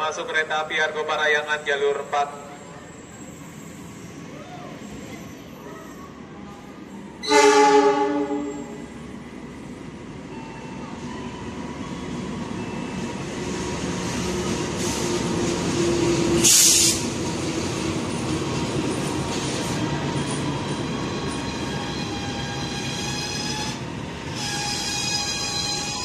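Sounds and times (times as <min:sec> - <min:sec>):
loud hiss: 0:16.4 - 0:17.1.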